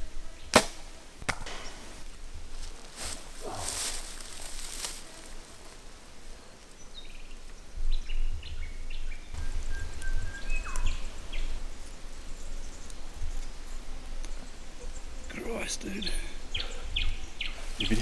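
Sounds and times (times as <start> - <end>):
bird whistling song: 8.0 - 11.0.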